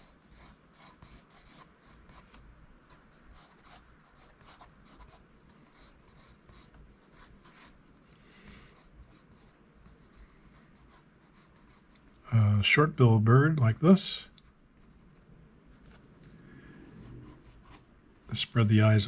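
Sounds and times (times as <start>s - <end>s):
pencil scratching on paper: 0.0s - 7.8s, 8.7s - 12.1s, 17.0s - 18.4s.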